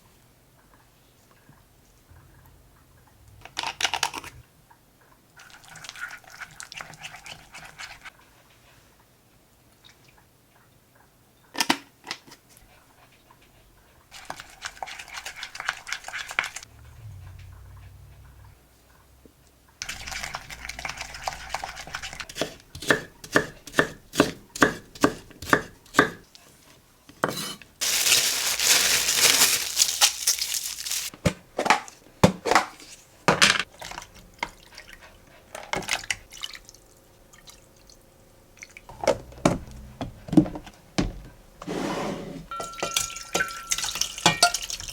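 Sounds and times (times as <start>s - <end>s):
utensils and dishes clinking: 42.5s - 44.9s.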